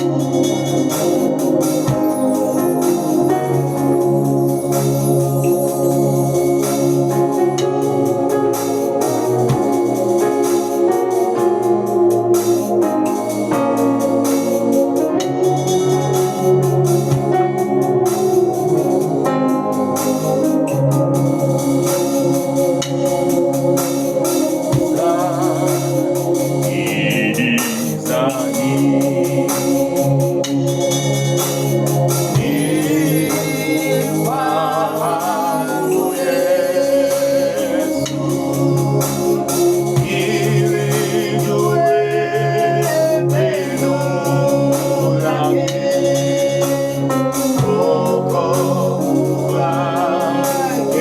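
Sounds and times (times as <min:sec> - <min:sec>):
electronic organ chords: 0:00.0 - 0:51.0
gospel singing: 0:00.0 - 0:51.0
percussion beat: 0:00.0 - 0:51.0.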